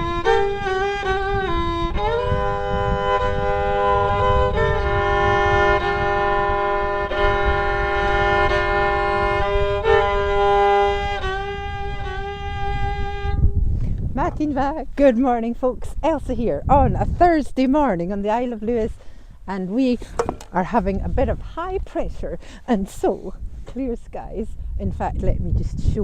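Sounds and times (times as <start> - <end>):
solo fiddle playing lament: 0.0 - 14.6.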